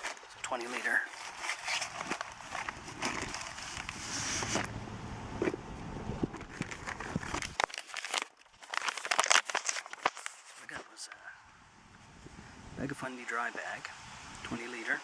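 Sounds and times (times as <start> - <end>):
fabric bag rustling and crinkling: 0.0 - 4.7, 6.4 - 11.0
low rumble: 2.6 - 7.6.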